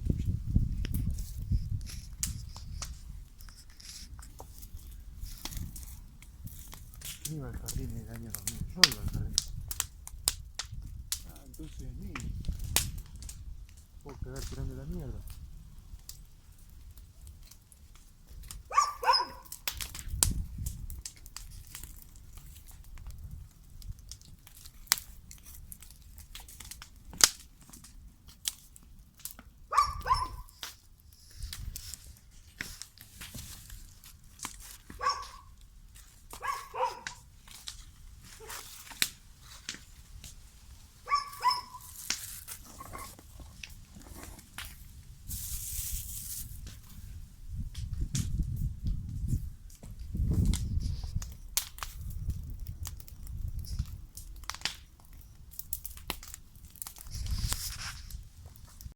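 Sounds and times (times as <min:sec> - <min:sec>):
sharp crackling clicks: 0:02.0 - 0:14.6, 0:17.2 - 0:30.8, 0:31.5 - 0:40.4, 0:41.1 - 0:44.8, 0:49.7 - 0:57.7
dog barking: 0:18.7 - 0:19.5, 0:29.7 - 0:30.5, 0:35.0 - 0:35.5, 0:36.4 - 0:37.2, 0:41.0 - 0:41.9
paper crumpling: 0:41.1 - 0:47.0.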